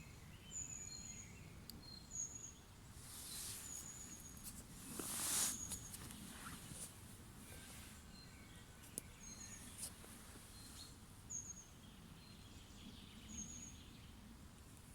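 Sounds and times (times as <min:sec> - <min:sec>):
faint bird chirps: 0:00.0 - 0:04.4, 0:07.5 - 0:14.2.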